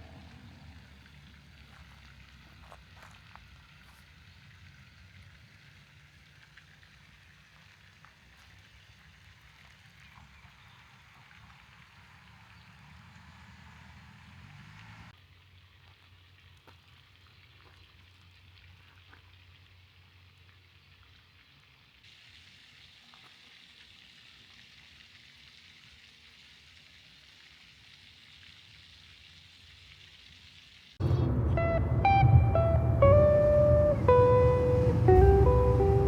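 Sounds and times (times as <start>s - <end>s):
steady outdoor hiss: 0.0s - 36.0s
acoustic guitar music: 31.0s - 36.0s.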